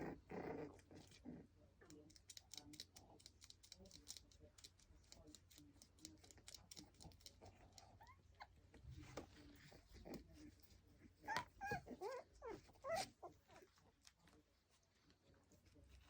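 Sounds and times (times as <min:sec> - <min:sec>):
puppy squeaks: 0:11.2 - 0:13.4
puppy whine: 0:11.2 - 0:13.8.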